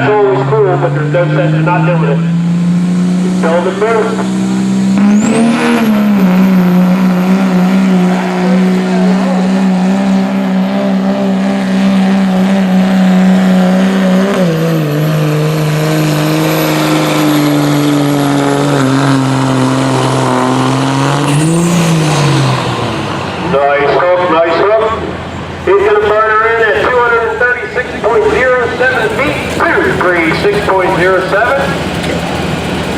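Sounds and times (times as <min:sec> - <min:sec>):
diesel truck engine straining: 0:00.0 - 0:32.9
turbo whistle: 0:05.0 - 0:06.8.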